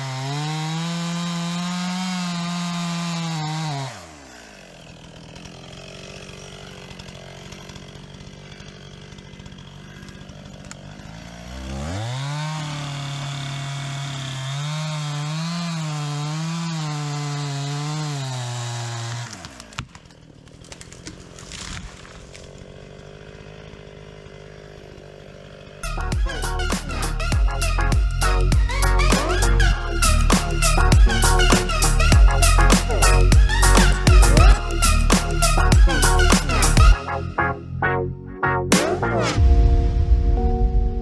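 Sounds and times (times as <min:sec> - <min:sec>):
chainsaw cutting wood: 0:00.0 - 0:37.2, 0:38.7 - 0:39.4.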